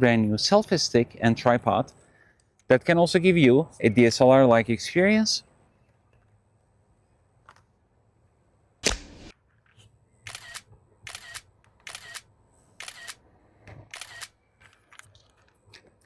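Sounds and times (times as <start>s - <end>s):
camera shutter clicks: 8.8s - 9.3s, 10.3s - 13.2s, 13.9s - 14.4s.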